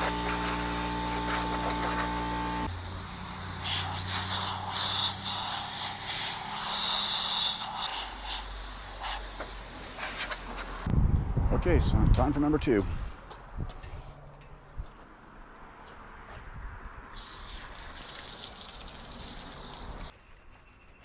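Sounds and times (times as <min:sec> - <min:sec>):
machine hum: 0:00.0 - 0:04.8
hissing water spray: 0:00.0 - 0:10.9, 0:17.2 - 0:20.1.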